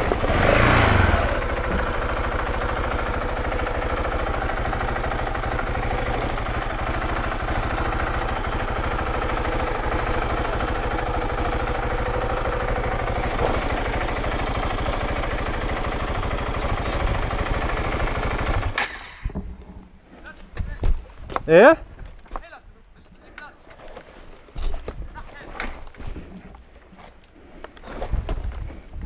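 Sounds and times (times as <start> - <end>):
motorcycle engine running: 0.0 - 18.8.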